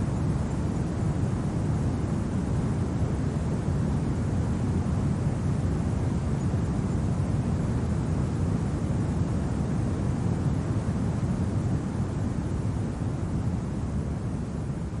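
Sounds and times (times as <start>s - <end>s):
low rumble of wind: 0.0s - 15.0s.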